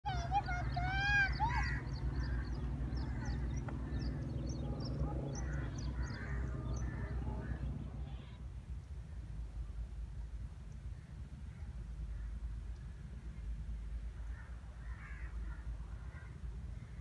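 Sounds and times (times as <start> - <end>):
low steady rumble: 0.0 - 17.0
loud arching bird calls: 0.1 - 8.4, 11.0 - 17.0
small birds chirping: 0.1 - 9.6.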